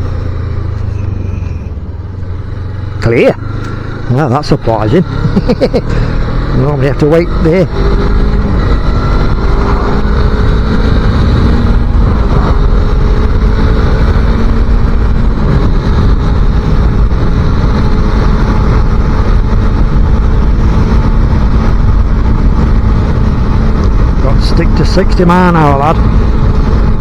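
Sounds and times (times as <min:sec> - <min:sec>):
motorcycle engine running: 0:00.0 - 0:27.0
wind buffeting microphone: 0:07.6 - 0:27.0.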